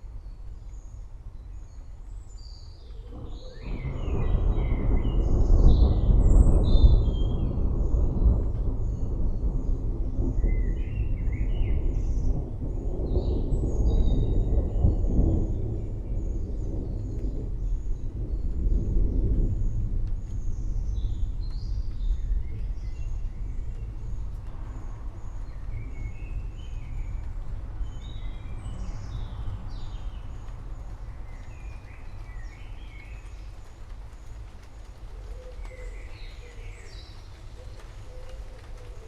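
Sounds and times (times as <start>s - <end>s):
distant thunder rumble: 0.4s - 39.0s
birds chirping: 10.2s - 39.0s.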